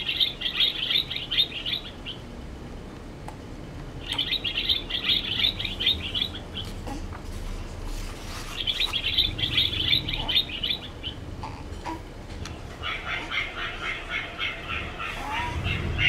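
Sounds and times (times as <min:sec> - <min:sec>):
small bird twittering: 0:00.0 - 0:02.2, 0:04.0 - 0:06.8, 0:08.4 - 0:11.2.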